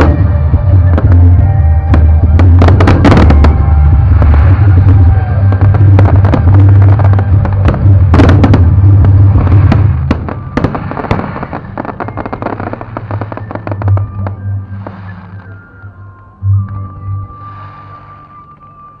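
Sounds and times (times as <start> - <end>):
heavy low rumble: 0.0 - 12.1
fireworks cracking and popping: 0.0 - 19.0.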